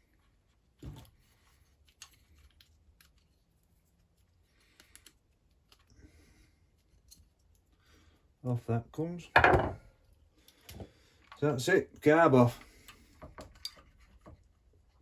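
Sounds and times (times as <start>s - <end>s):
light clicks of small parts: 1.8s - 3.4s, 4.6s - 6.0s, 6.8s - 7.8s.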